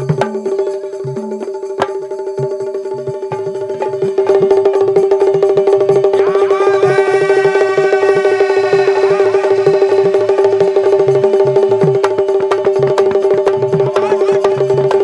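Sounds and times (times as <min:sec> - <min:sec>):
bending melody line: 0:00.0 - 0:14.7
clicking percussion and drums: 0:00.0 - 0:15.0
held drone note: 0:02.8 - 0:14.9.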